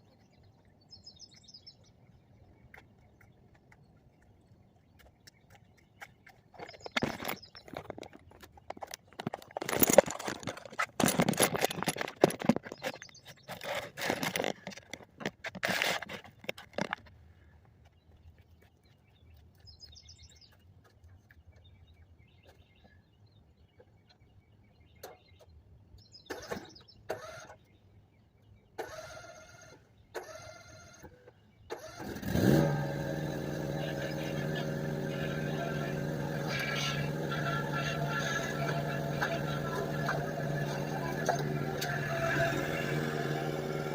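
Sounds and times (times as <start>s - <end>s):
rattling and knocking: 6.6s - 17.0s
lawn mower engine starting: 9.2s - 15.0s, 28.8s - 29.6s, 31.7s - 43.9s.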